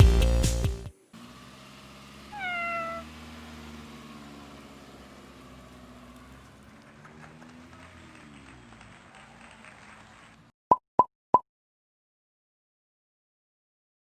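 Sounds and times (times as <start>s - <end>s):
cat meowing: 2.3s - 3.2s.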